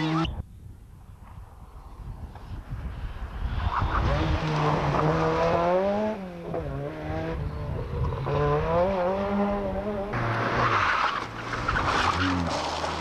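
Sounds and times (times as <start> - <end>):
rally car engine revving: 3.7 - 13.0.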